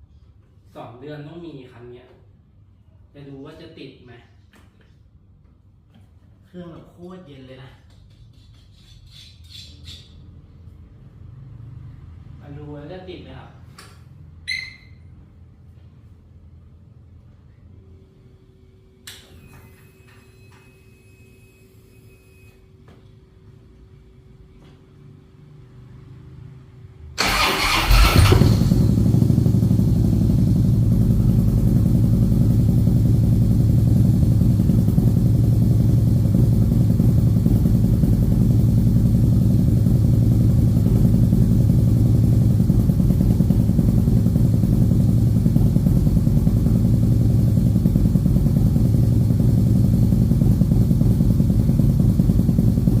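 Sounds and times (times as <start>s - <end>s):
motorcycle starter cranking: 27.2s - 29.4s
motorcycle engine idling: 27.2s - 53.0s.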